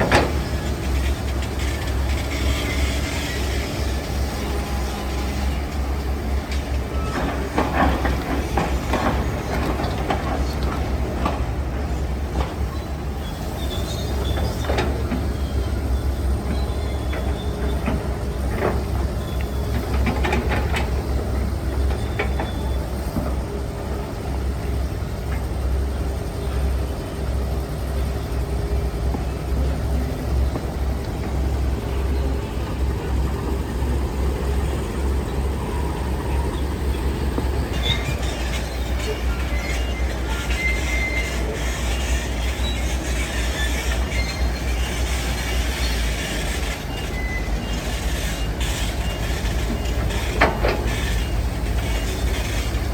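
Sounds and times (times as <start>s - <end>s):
metal clanks and knocks: 0.0s - 3.0s, 49.6s - 52.7s
heavy diesel machinery rumbling: 0.0s - 52.9s.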